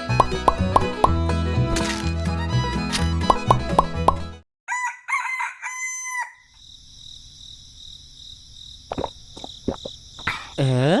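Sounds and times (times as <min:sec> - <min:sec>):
rooster crowing: 0:04.7 - 0:06.6.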